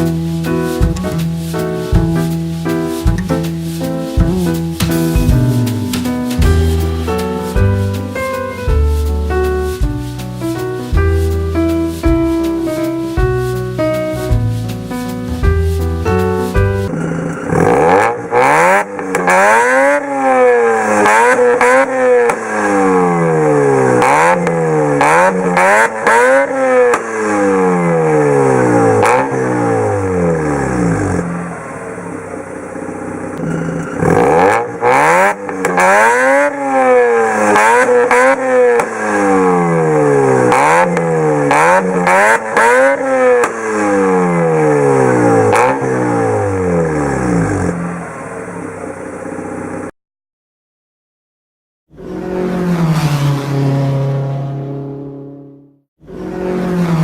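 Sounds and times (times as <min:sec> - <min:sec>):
rotary engine revving: 0:03.0 - 0:07.4, 0:16.8 - 0:49.9, 0:52.0 - 0:55.4, 0:56.1 - 0:57.0.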